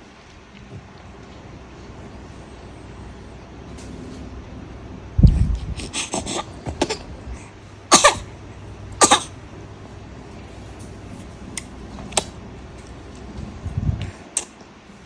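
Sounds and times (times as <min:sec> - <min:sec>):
baby coughing: 0:05.8 - 0:07.1, 0:07.9 - 0:08.3, 0:09.0 - 0:09.4.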